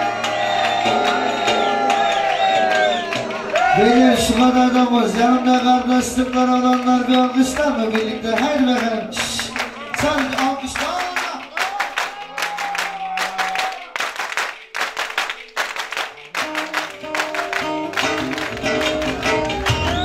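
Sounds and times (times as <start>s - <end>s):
live instrumental music: 0.0s - 6.2s, 14.0s - 20.0s
crowd clapping along: 0.0s - 20.0s.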